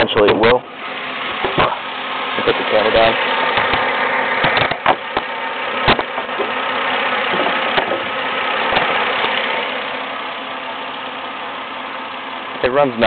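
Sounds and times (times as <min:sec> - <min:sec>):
car engine idling: 0:00.0 - 0:13.0
sharp knocks: 0:01.4 - 0:01.8, 0:03.6 - 0:06.6, 0:07.3 - 0:09.0.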